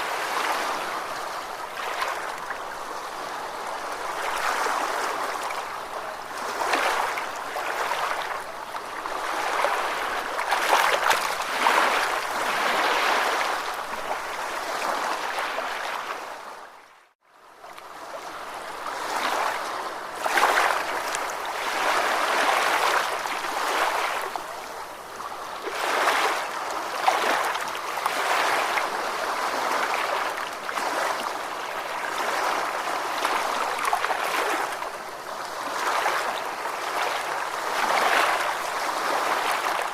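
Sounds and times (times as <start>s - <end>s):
ocean waves washing: 0.0s - 16.5s.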